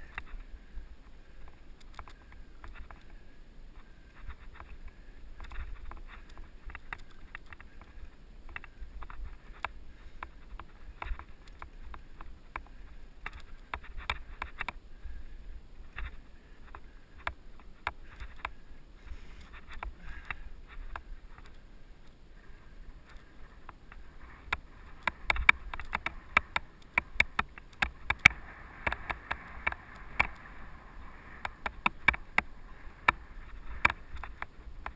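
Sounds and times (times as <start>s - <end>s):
bike tyres rumbling on dirt: 23.0s - 34.9s.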